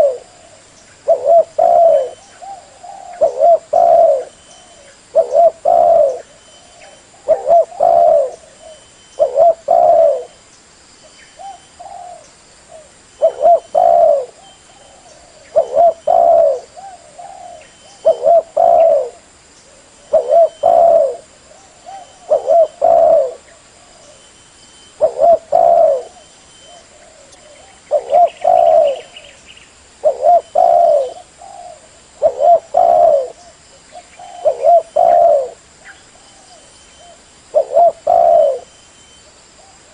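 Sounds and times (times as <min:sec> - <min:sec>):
dove cooing: 0:00.0 - 0:10.4, 0:11.4 - 0:24.2, 0:24.9 - 0:29.4, 0:30.0 - 0:38.8.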